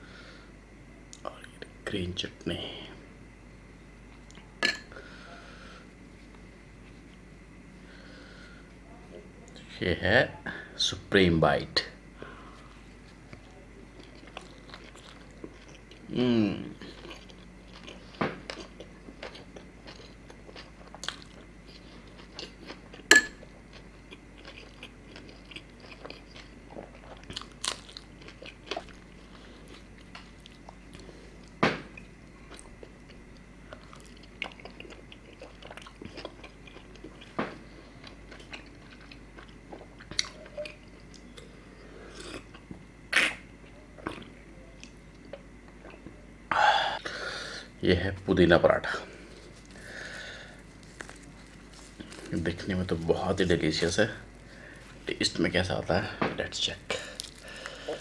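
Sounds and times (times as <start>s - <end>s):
chewing with wet mouth sounds: 12.9s - 16.1s, 16.8s - 42.8s, 43.6s - 46.2s, 56.9s - 58.0s.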